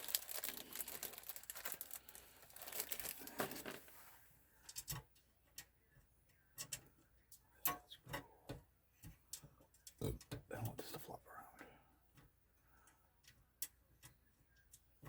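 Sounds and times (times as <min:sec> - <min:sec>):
rustling crinkling handling noise: 0:00.0 - 0:04.9
light clicks and taps: 0:04.6 - 0:10.5.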